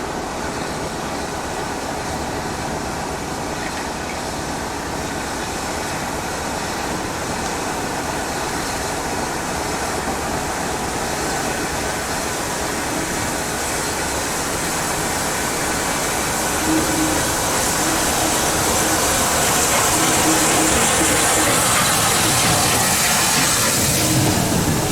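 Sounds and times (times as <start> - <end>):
steam locomotive rushing: 0.0 - 24.9
steam hissing: 8.4 - 24.9.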